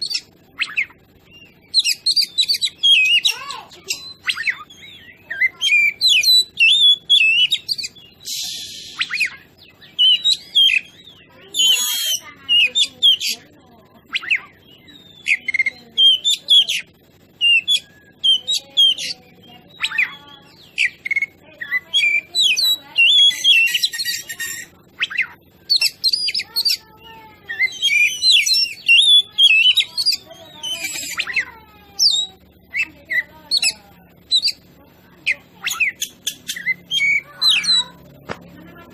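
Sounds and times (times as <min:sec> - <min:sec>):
songbird whistling and trilling: 0:00.0 - 0:38.8
harsh rasping bird notes: 0:00.0 - 0:38.9.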